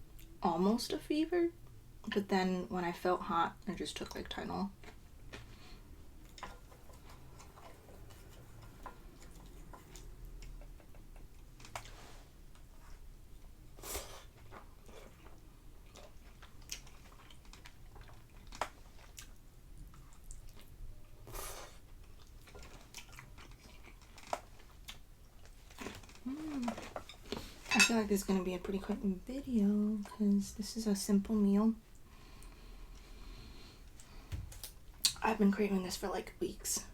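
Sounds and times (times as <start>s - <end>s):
person chewing food: 4.8s - 27.5s.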